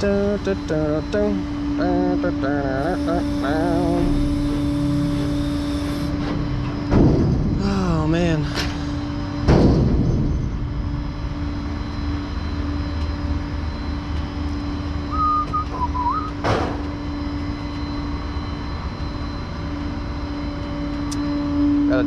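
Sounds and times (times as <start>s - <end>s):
truck engine running: 0.0s - 17.8s
loud rushing clunk: 6.8s - 7.6s, 9.4s - 10.6s
wavering whistle: 15.0s - 16.4s.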